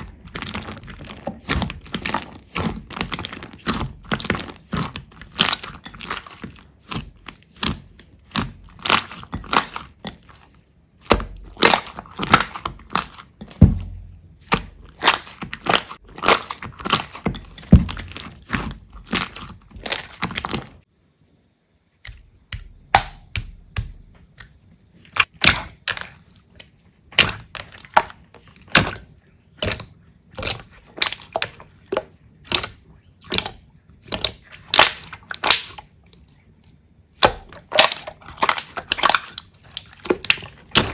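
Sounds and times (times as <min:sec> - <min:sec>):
slime squeezed crackling and popping: 0:32.4 - 0:35.9.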